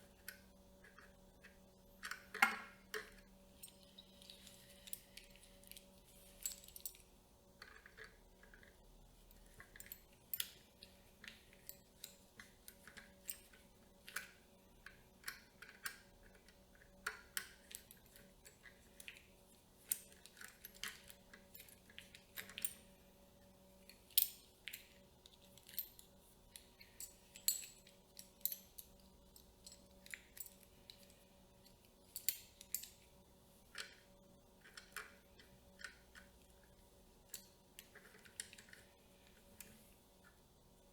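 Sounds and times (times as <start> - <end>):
faint steady hum: 0.0 - 40.9
clicks and snaps of small parts: 0.2 - 7.0, 9.6 - 19.3, 33.7 - 36.6.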